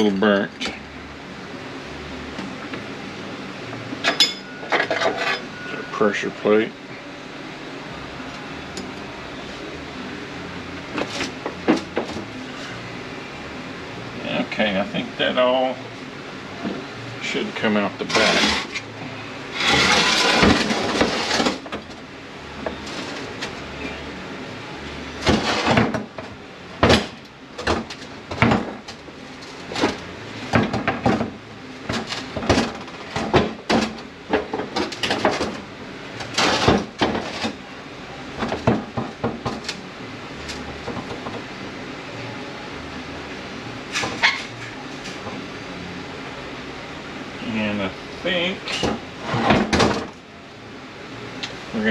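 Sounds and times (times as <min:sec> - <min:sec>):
metal parts clanking and scraping: 0:04.0 - 0:05.8, 0:18.0 - 0:18.9, 0:19.5 - 0:21.8, 0:25.2 - 0:26.0, 0:36.2 - 0:37.6.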